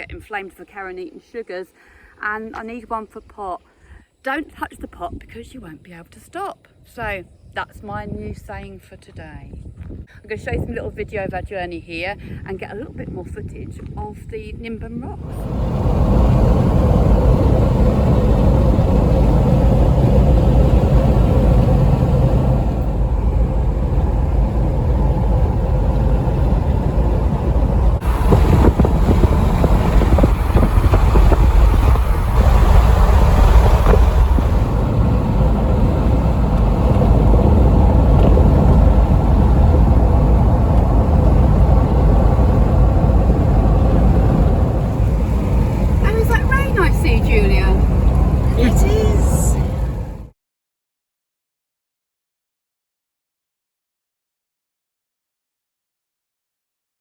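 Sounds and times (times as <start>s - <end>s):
car engine rumble: 15.2s - 50.3s
tyre road noise: 15.2s - 50.3s.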